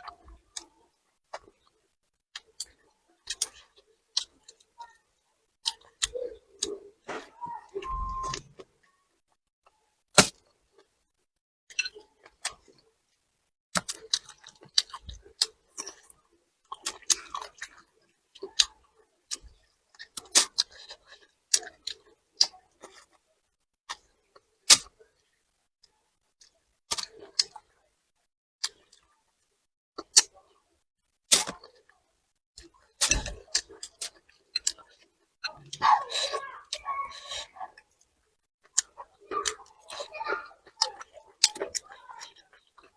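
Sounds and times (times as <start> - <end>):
chewing: 13.8 - 18.7, 32.6 - 38.0, 38.7 - 42.9.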